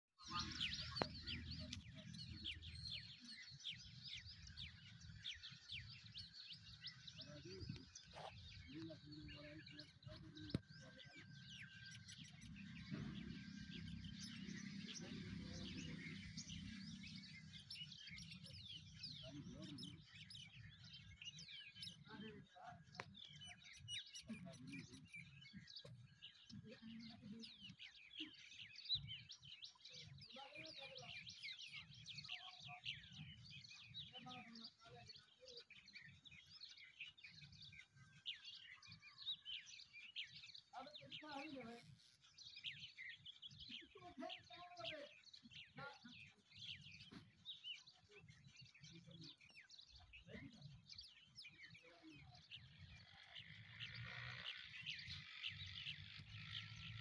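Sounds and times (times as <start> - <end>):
small birds chirping: 0.0 - 57.0
distant voices: 7.2 - 23.4.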